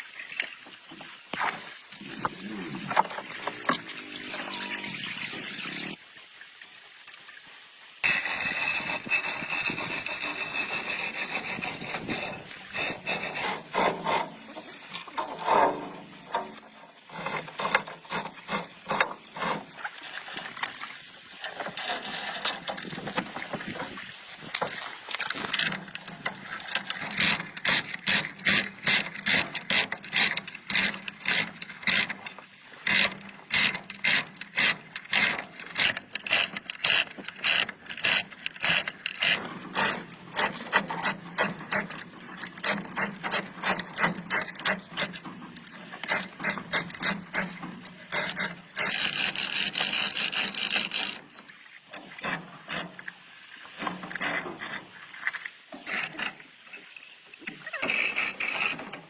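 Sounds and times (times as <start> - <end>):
scraping rasping strokes: 8.0 - 19.8, 21.4 - 23.2, 25.3 - 51.4.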